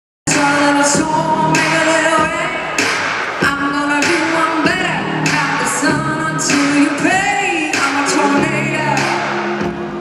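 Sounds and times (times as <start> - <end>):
vocals singing in harmony: 0.3 - 9.8
live country band: 0.3 - 10.0.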